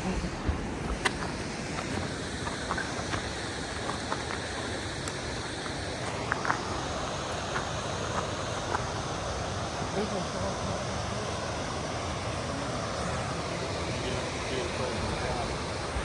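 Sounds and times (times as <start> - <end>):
waterfall rushing: 0.0 - 16.0
faint clicks: 0.7 - 9.0.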